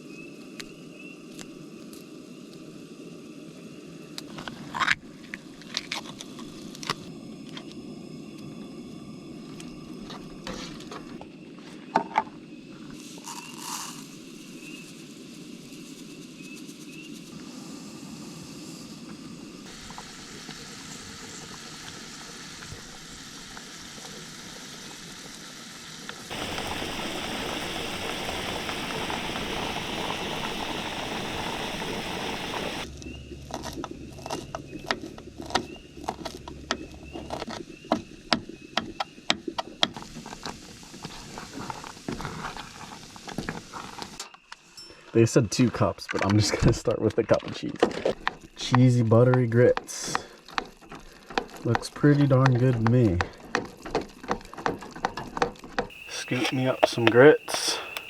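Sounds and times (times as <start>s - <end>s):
food crackling and sizzling: 12.9s - 32.9s, 39.9s - 44.7s, 53.7s - 58.0s
even hissing: 26.3s - 32.9s, 55.9s - 58.0s.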